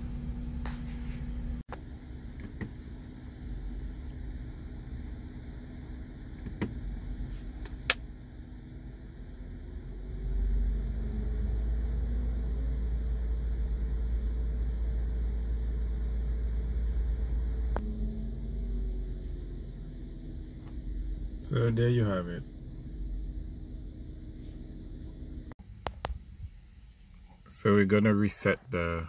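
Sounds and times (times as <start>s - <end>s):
car engine idling: 11.9s - 28.1s.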